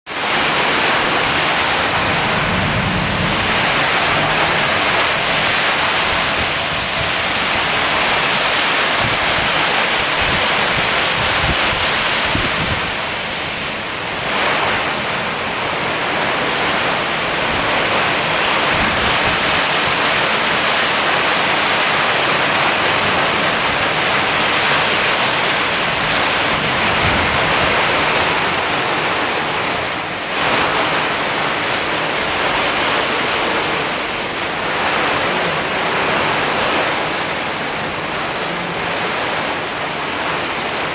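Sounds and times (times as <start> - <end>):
steady rain falling: 0.1 - 40.9.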